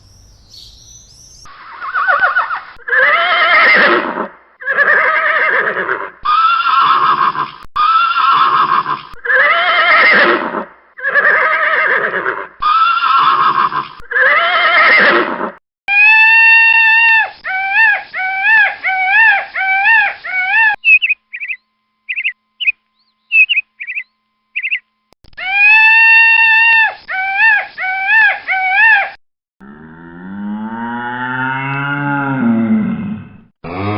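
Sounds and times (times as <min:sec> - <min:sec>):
bird calls: 0:00.0 - 0:02.6, 0:20.8 - 0:24.9
horse neighing: 0:01.7 - 0:15.6.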